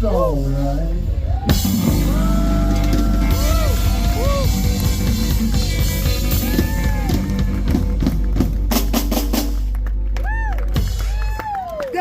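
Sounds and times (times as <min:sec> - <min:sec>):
held low bass note: 0:00.0 - 0:11.0
live blues band playing: 0:00.7 - 0:11.8
drum hits: 0:01.5 - 0:09.7.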